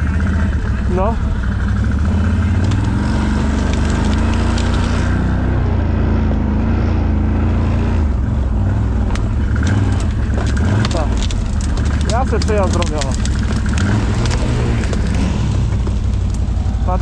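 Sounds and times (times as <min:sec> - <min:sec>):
knocks and rattles: 0:00.0 - 0:05.3, 0:08.9 - 0:17.0
atv engine running: 0:00.0 - 0:17.0.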